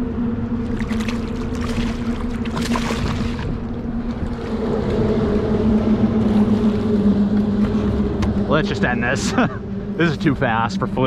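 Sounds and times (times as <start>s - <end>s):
motorboat engine droning: 0.0s - 11.0s
water splashing: 0.6s - 8.5s.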